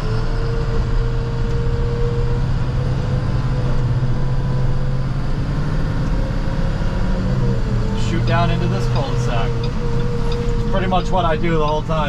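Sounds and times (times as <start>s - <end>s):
truck engine running: 0.0s - 12.0s
thin steady whine: 7.9s - 12.0s.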